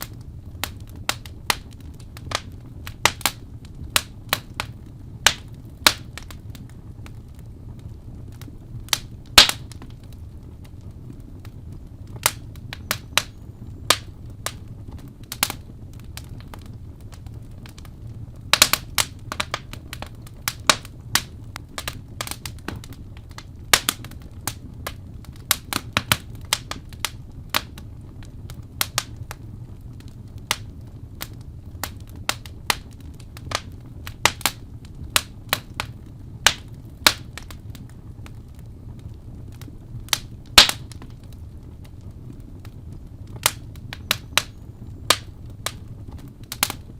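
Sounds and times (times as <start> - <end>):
wood fire crackling and popping: 0.0 - 46.9.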